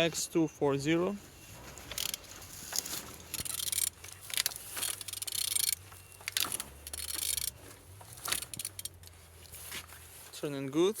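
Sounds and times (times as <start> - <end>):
handling noise: 1.3 - 10.4
metallic clicks and scraping: 1.5 - 9.9.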